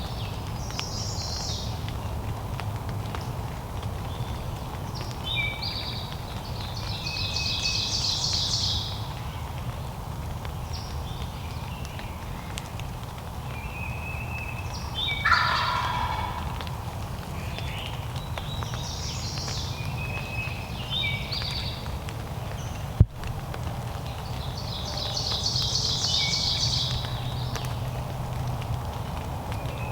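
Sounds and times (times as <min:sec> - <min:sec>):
small bird calls: 0:13.6 - 0:21.8
turkey gobbling: 0:15.1 - 0:16.9.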